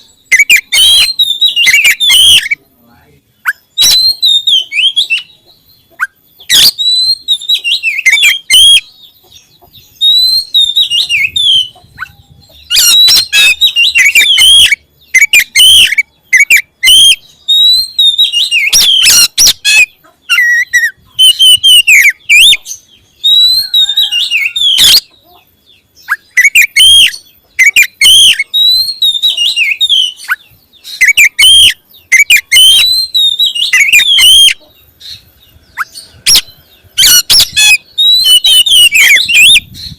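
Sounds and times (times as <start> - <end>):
songbird whistling and chirping: 0.0 - 39.9.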